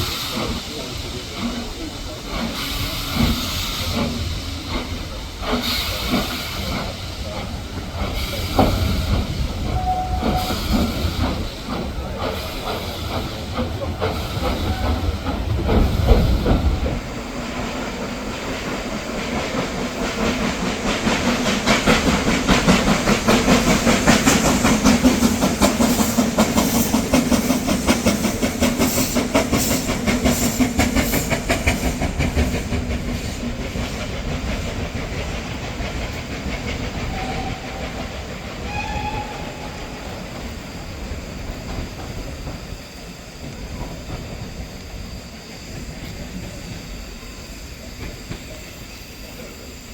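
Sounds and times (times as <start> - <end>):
steam train passing: 0.0 - 49.9
short high tones: 9.7 - 10.8.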